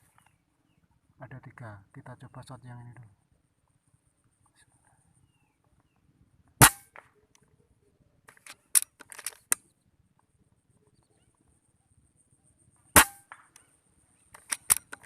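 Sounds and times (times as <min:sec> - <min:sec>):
gunshot: 0:06.6 - 0:07.1, 0:13.0 - 0:13.5
sharp clicks and clatters: 0:08.3 - 0:09.6, 0:14.3 - 0:15.0.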